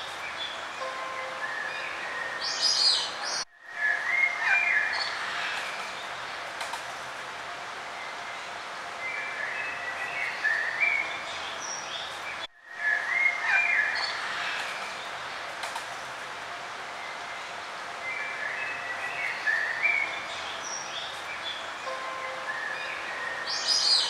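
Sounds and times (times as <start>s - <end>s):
steady background hiss: 0.0s - 24.0s
birds chirping: 17.0s - 24.0s.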